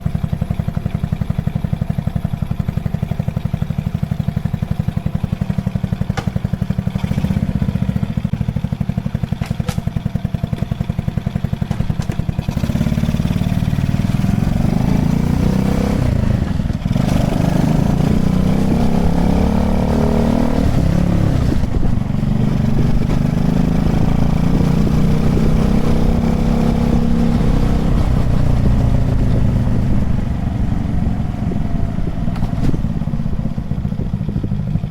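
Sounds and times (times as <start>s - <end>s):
minibike engine puttering: 0.0s - 34.9s.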